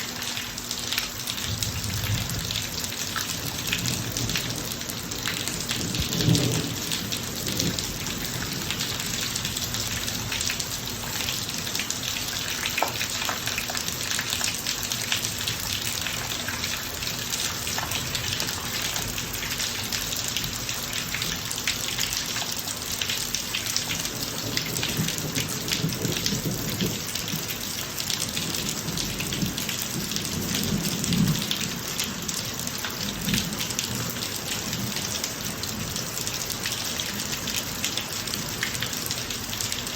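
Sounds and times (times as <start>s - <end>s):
heavy rain on pavement: 0.0s - 39.9s
raindrops striking close by: 0.0s - 39.9s
low thunder rumbling: 1.4s - 11.6s, 24.2s - 27.5s, 28.4s - 32.3s.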